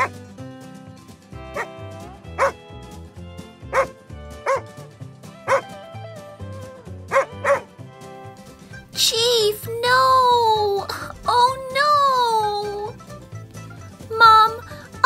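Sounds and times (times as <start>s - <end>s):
light background music: 0.0s - 15.0s
dog barking: 1.6s - 1.8s, 2.4s - 2.6s, 3.7s - 4.7s, 5.5s - 5.7s, 7.1s - 7.7s.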